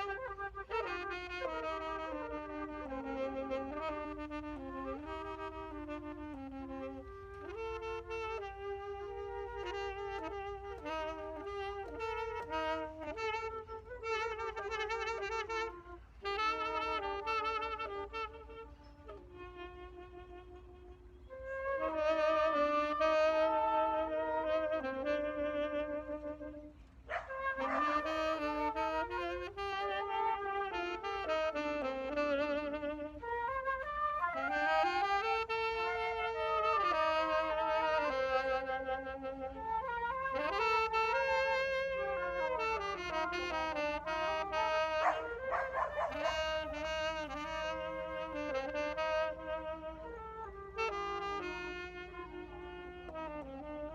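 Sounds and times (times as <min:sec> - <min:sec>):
instrumental melody with vibrato: 0:00.0 - 0:53.9.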